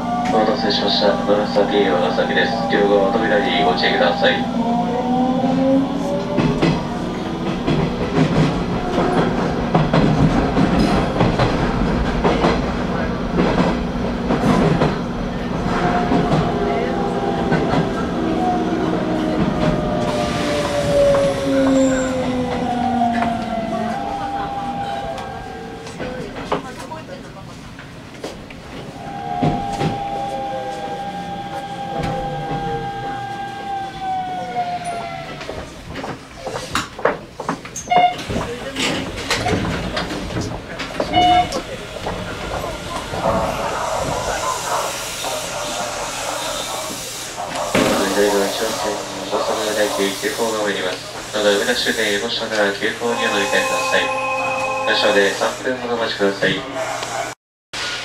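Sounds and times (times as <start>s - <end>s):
train low rumble: 0.0s - 58.0s
falling pitch tone: 29.0s - 35.4s, 53.0s - 55.4s.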